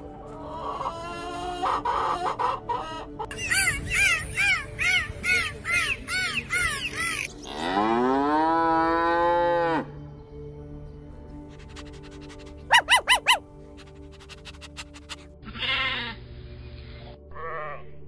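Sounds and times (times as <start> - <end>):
chickens clucking: 0.2 - 3.7
cow mooing: 7.4 - 9.9.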